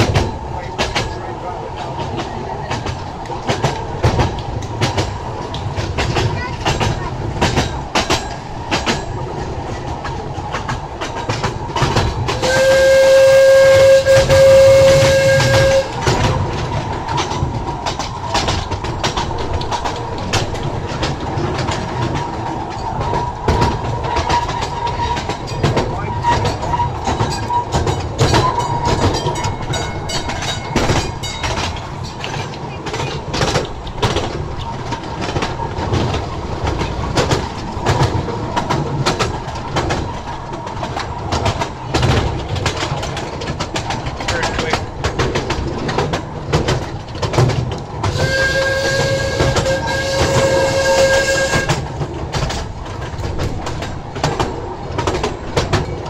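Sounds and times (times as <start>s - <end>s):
small train rumbling and clattering: 0.0s - 56.0s
train horn toot: 12.4s - 16.3s, 48.0s - 51.9s.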